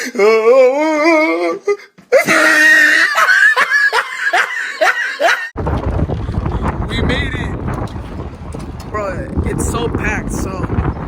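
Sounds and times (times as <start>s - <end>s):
person laughing hard: 2.2s - 5.5s.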